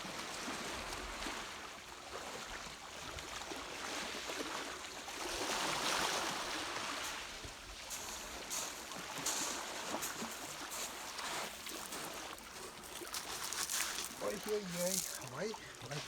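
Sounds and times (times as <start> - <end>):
sea waves washing and splashing: 4.3 - 16.0.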